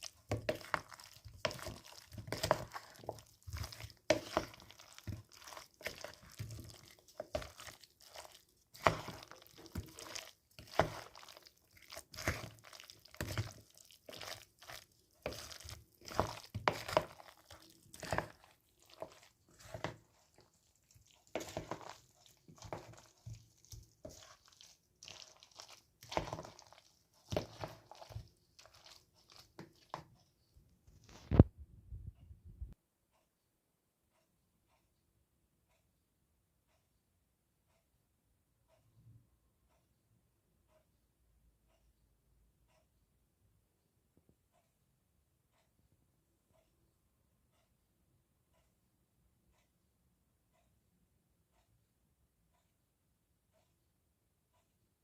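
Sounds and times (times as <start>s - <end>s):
person chewing crunchy food: 0.0s - 30.1s.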